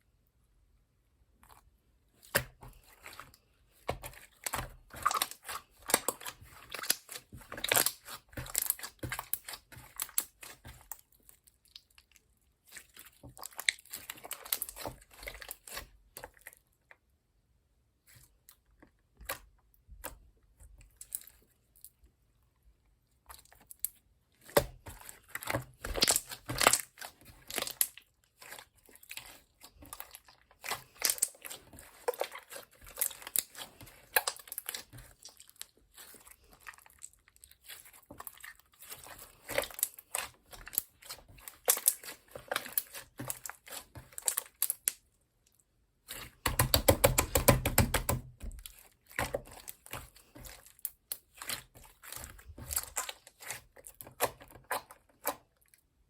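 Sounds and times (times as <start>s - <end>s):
slime squished by hand: 1.4s - 12.0s, 23.2s - 45.0s, 46.0s - 55.6s.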